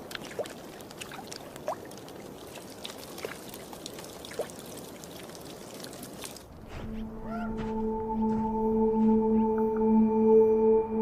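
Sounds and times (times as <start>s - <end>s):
meltwater trickling over ice: 0.0s - 6.5s
water drips and plinks: 0.0s - 6.5s.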